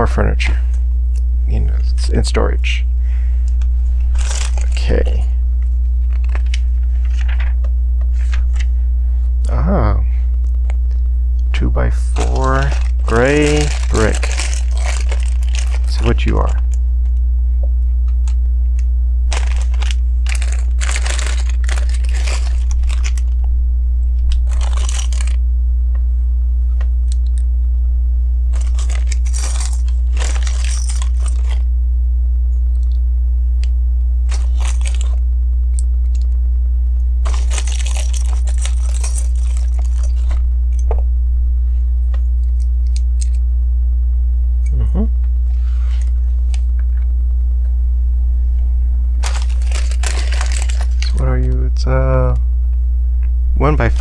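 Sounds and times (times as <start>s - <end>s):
low hum: 0.0s - 54.0s
hands rummaging plastic bricks: 4.0s - 5.0s, 6.0s - 7.5s, 12.1s - 16.8s, 19.3s - 23.4s, 24.3s - 25.4s, 28.5s - 31.7s, 34.3s - 35.2s, 37.2s - 40.8s, 49.2s - 51.5s.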